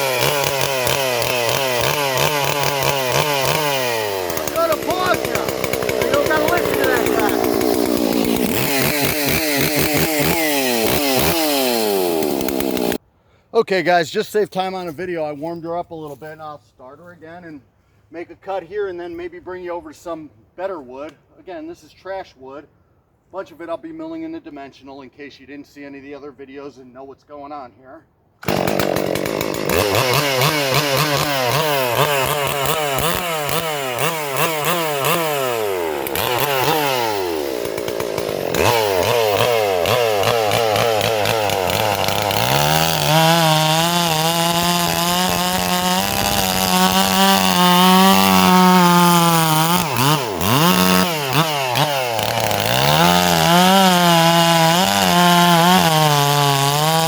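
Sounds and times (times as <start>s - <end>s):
chainsaw cutting wood: 0.0s - 13.0s, 28.4s - 57.0s.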